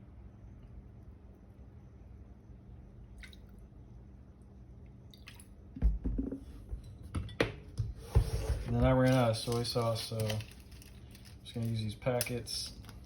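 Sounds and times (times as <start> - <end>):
bottles and spoon knocking on counter: 5.8 - 8.3.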